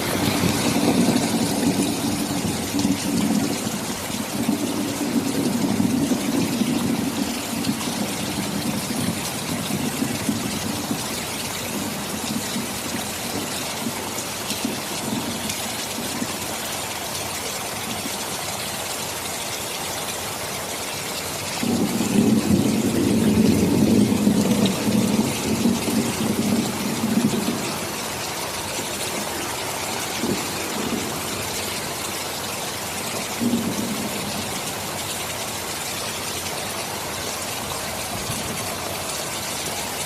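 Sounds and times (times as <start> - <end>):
thunder rumbling: 0.0 - 16.4, 21.6 - 35.0
heavy rain: 0.0 - 40.0.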